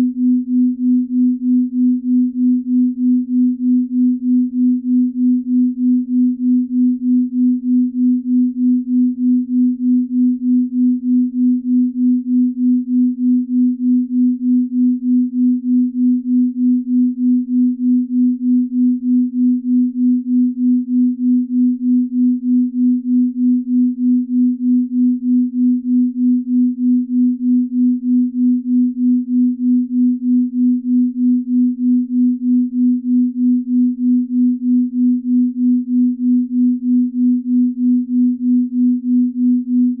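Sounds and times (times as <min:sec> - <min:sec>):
low pulsing pure tone: 0:00.0 - 0:40.0.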